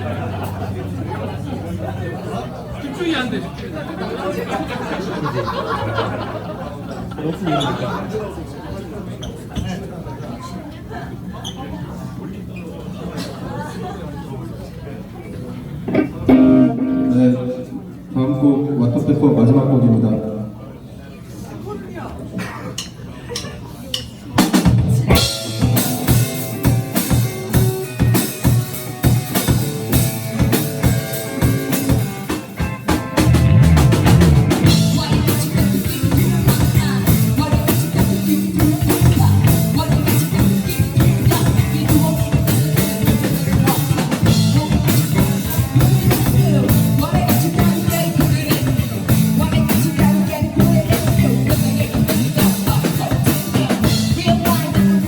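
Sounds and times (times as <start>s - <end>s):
drum kit strokes: 15.9s - 17.5s, 24.0s - 55.0s
live band playing: 15.9s - 18.0s, 24.3s - 55.0s.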